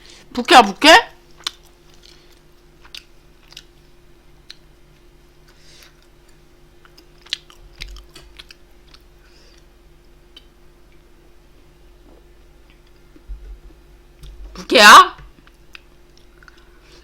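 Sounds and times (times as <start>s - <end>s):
faint steady hum: 0.0s - 17.0s
person chewing food: 1.3s - 11.1s, 15.4s - 17.0s.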